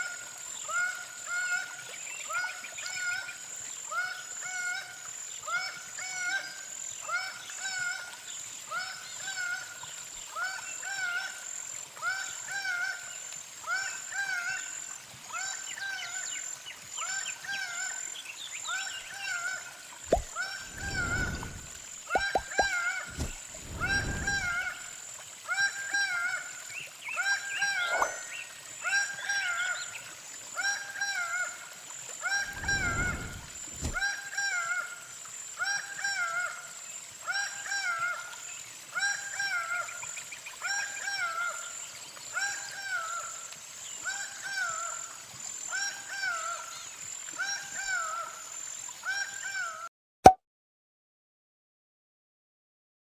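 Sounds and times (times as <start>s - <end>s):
bird nasal call: 20.1s - 24.8s, 27.6s - 28.3s, 32.3s - 34.2s.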